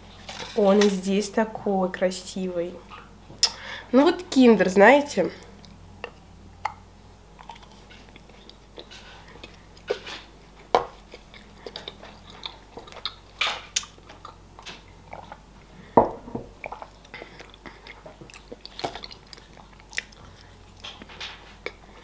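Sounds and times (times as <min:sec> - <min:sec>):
chewing with mouth clicks: 0:07.4 - 0:15.5, 0:16.6 - 0:22.0.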